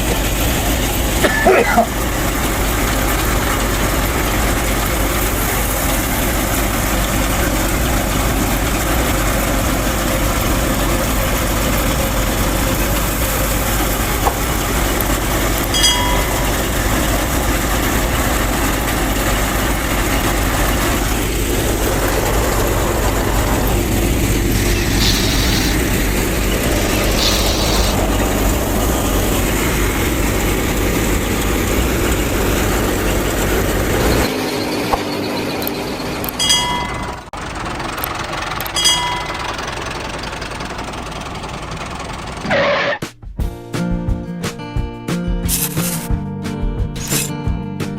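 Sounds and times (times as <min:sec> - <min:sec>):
small motor running with rattle: 0:00.0 - 0:43.0
short high hissy bursts: 0:24.6 - 0:25.9, 0:26.9 - 0:28.0
brief pitched tone: 0:42.5 - 0:43.0.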